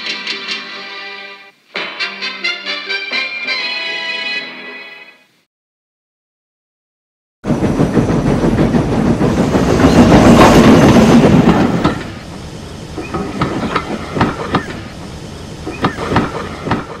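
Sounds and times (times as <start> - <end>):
train passing: 7.4 - 17.0
wheels clacking over rail joints: 7.6 - 17.0.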